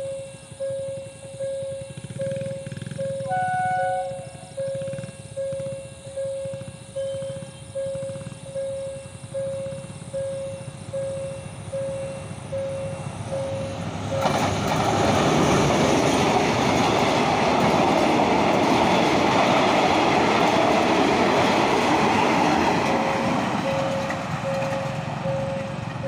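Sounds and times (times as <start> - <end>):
short regular beeps: 0.0 - 14.4, 23.1 - 25.8
train wheels on rails: 0.7 - 26.0.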